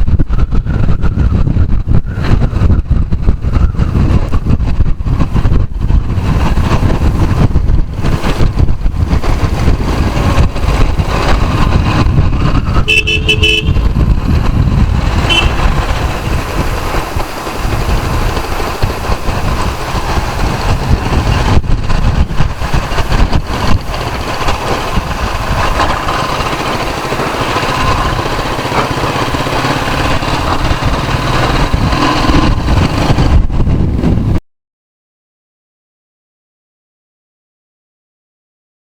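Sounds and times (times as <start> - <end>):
vehicle engine: 0.0 - 34.4
wind rushing over microphone: 0.0 - 34.4
vehicle horn honking: 12.7 - 14.0, 15.2 - 15.9.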